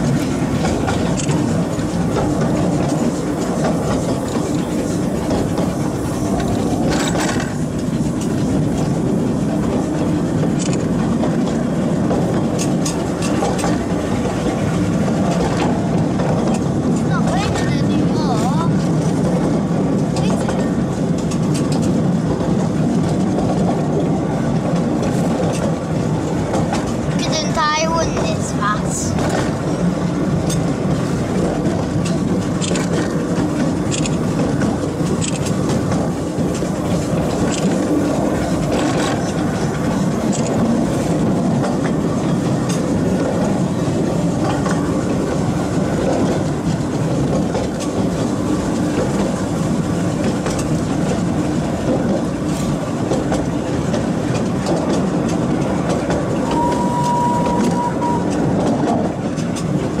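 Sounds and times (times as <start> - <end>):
train wheels rumbling on rails: 0.0 - 60.0
steady high tone: 56.5 - 58.4.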